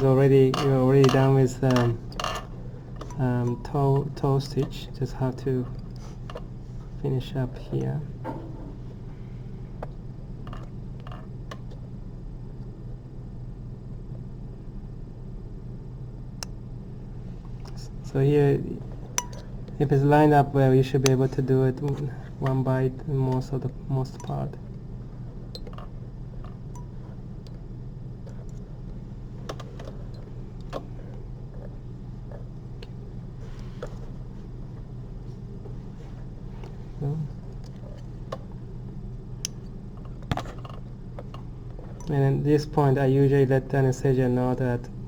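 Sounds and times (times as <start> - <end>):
low electrical hum: 0.0 - 45.0
surgical instruments clicking: 0.5 - 4.8, 25.5 - 27.6.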